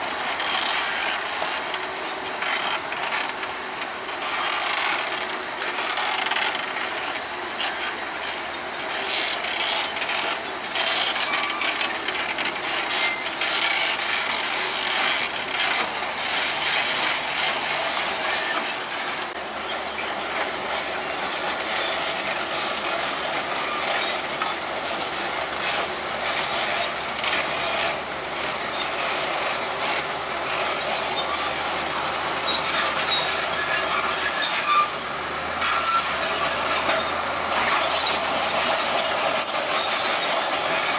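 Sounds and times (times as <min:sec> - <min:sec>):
bulldozer engine running: 0:00.0 - 0:40.9
crawler tracks clattering and squeaking: 0:00.0 - 0:40.9.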